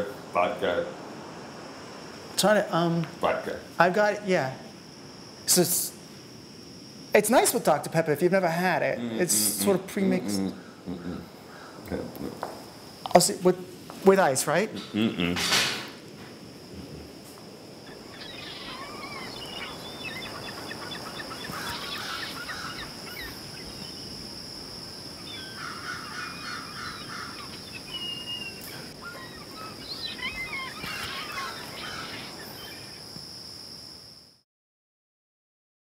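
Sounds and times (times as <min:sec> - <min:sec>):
steady high-pitched whine: 0:00.0 - 0:34.4
birds chirping and calling: 0:17.8 - 0:24.0, 0:25.2 - 0:33.0.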